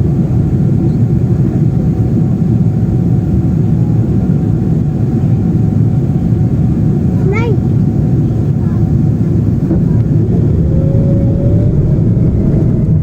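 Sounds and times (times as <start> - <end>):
airplane engine rumble in cabin: 0.0 - 13.0.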